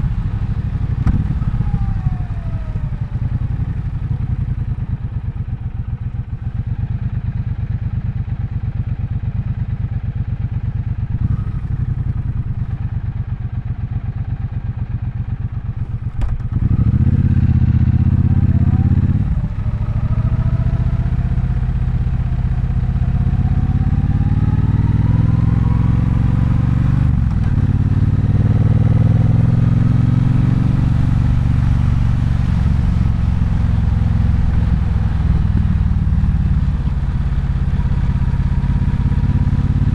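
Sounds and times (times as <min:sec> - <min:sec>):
motorcycle engine revving: 0:00.0 - 0:04.7, 0:11.1 - 0:13.0, 0:15.7 - 0:39.9.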